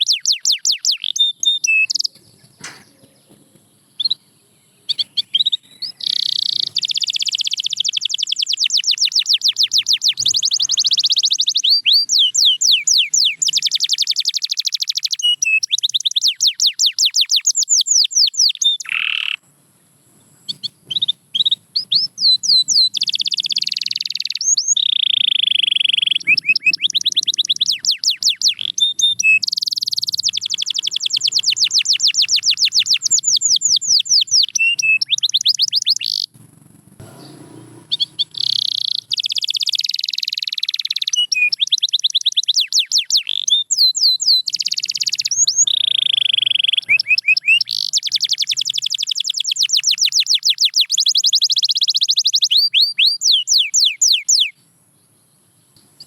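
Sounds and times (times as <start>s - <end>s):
canary trilling: 0.0s - 3.2s, 4.9s - 19.4s, 20.5s - 54.5s.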